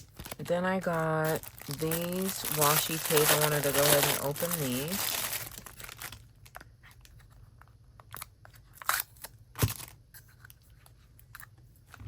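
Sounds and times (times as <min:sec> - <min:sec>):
packaging crinkling and tearing: 0:00.0 - 0:07.2, 0:08.1 - 0:10.0.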